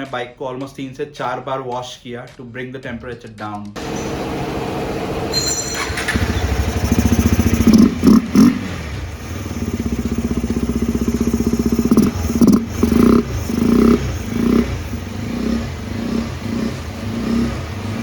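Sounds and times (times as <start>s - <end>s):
motorcycle engine idling and revving: 3.8s - 18.0s.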